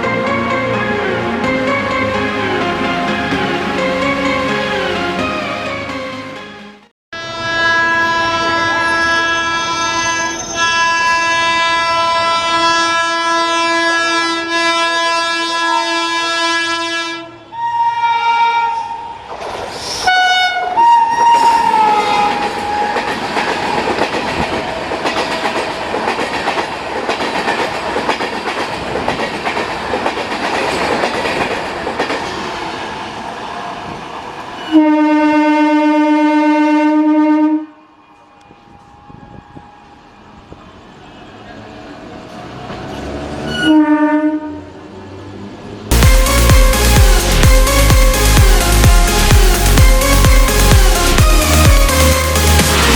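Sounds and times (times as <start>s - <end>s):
locomotive air horn: 4.1s - 19.2s, 20.0s - 23.1s, 34.7s - 37.8s, 43.5s - 44.6s.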